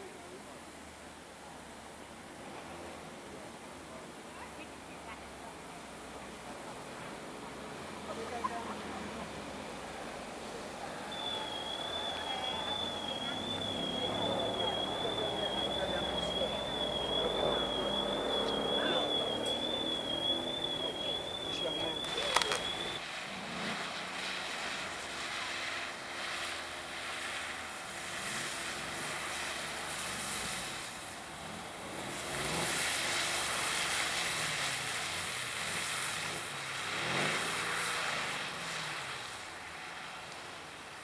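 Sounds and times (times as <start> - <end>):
car engine revving: 7.5 - 39.3.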